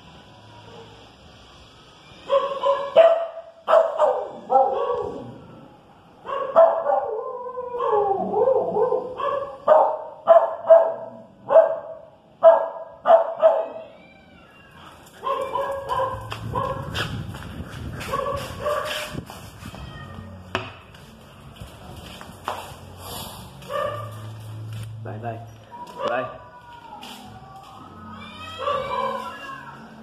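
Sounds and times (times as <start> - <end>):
dogs barking excitedly: 2.3 - 5.3, 6.2 - 13.8, 15.0 - 19.2, 23.6 - 24.4, 28.6 - 29.2.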